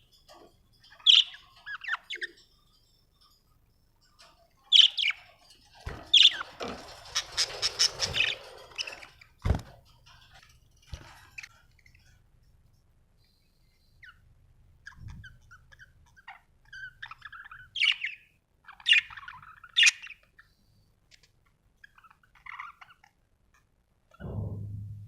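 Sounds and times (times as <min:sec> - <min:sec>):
budgerigar chirping and warbling: 0:14.8 - 0:20.3.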